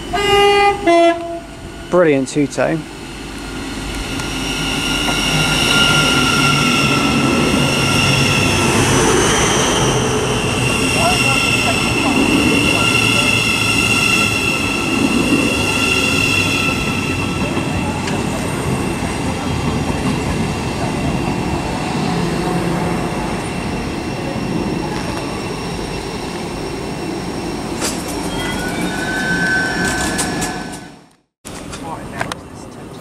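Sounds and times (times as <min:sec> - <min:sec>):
standing train running noise: 0:00.0 - 0:33.0
train brake squeal: 0:03.5 - 0:18.1, 0:27.8 - 0:31.0.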